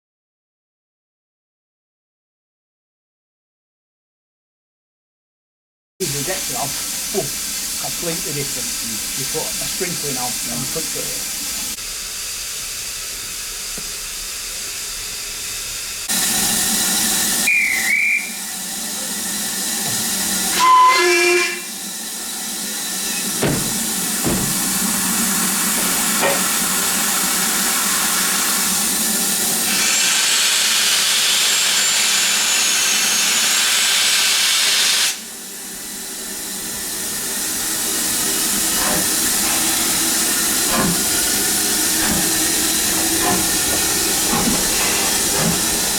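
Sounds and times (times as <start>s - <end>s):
high hiss of escaping steam: 6.0s - 45.9s
steam locomotive hissing: 6.0s - 45.9s
locomotive whistle blast: 17.3s - 18.6s, 20.5s - 21.8s.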